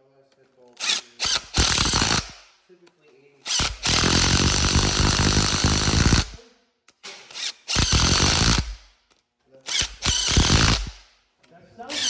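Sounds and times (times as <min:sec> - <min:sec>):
power drill spinning: 0:00.8 - 0:02.5, 0:03.4 - 0:06.4, 0:07.0 - 0:08.9, 0:09.7 - 0:11.1
drill trigger blip: 0:03.5 - 0:06.4, 0:07.0 - 0:08.9, 0:09.7 - 0:11.1.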